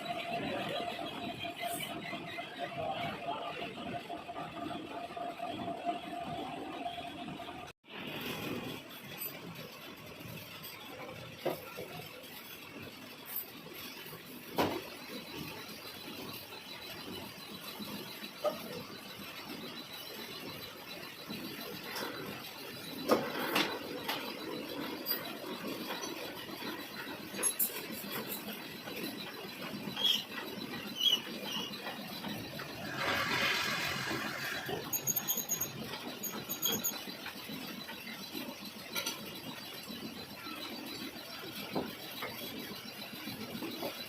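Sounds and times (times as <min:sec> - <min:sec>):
lathe tool scraping metal: 0:23.2 - 0:37.7
metal lathe machining hiss: 0:32.7 - 0:36.9.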